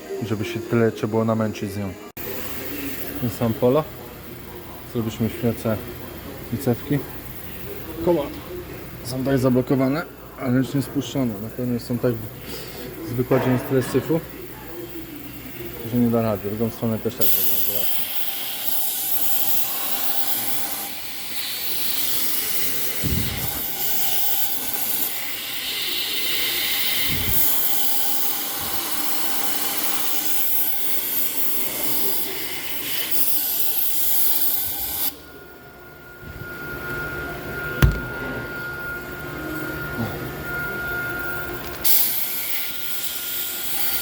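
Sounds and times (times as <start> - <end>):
sharp knock: 37.8 - 38.2.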